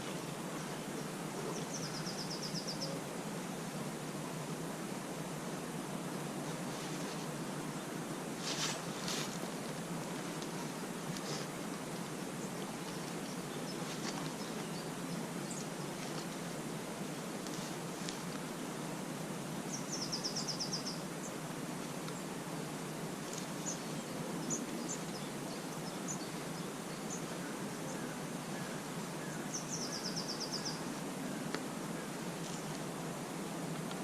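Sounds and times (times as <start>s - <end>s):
outdoor background noise: 0.0s - 34.0s
bird chirps: 1.4s - 3.0s, 19.7s - 21.0s, 29.3s - 30.9s.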